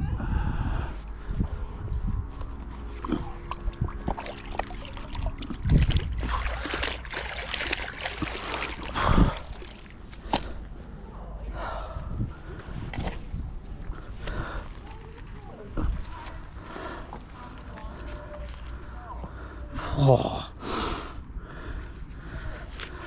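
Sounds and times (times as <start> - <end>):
water sloshing and dripping: 2.8 - 10.8.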